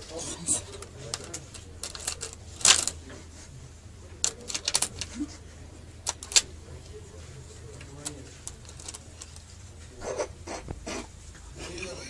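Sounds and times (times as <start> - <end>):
coins clinking and clattering: 1.1 - 3.0, 4.2 - 5.1, 6.1 - 6.5.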